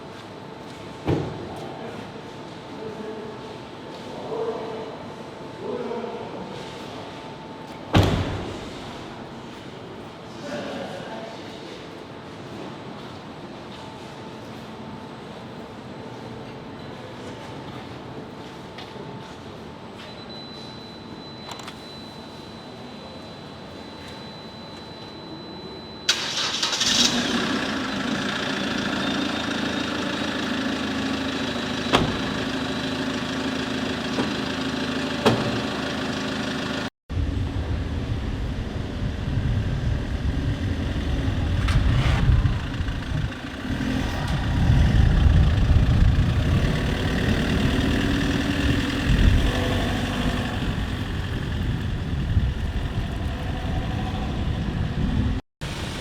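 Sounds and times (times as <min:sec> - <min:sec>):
car engine starting and idling: 0:26.1 - 0:36.9, 0:40.4 - 0:54.5
road rumble: 0:26.1 - 0:56.0.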